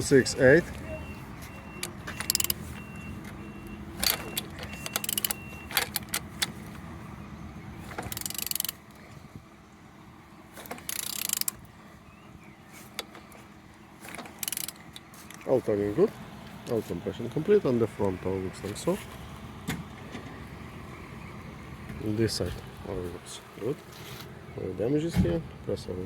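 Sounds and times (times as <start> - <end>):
metal clinks: 1.8 - 2.6, 4.0 - 6.3
ratchet-like clicks: 1.8 - 2.6, 4.0 - 6.5, 8.0 - 8.8, 10.6 - 11.6, 14.2 - 15.0.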